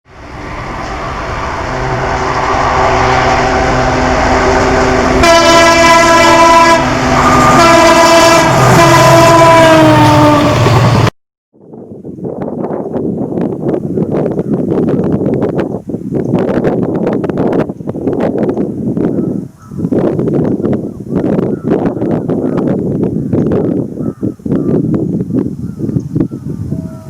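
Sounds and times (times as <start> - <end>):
locomotive engine and train noise: 0.1 - 27.0
multi-tone locomotive horn: 0.7 - 11.1.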